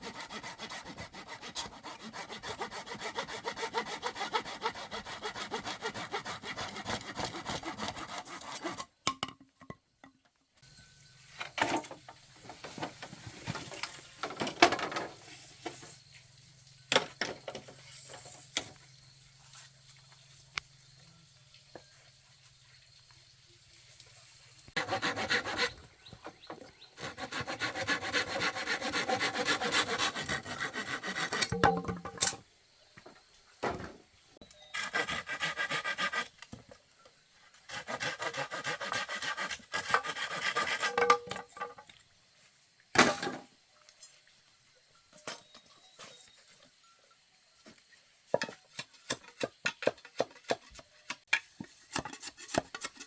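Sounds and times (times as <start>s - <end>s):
hand saw cutting bamboo: 0.0s - 8.9s, 24.8s - 25.8s, 27.0s - 31.6s, 34.7s - 36.4s, 37.6s - 41.3s, 51.9s - 53.0s.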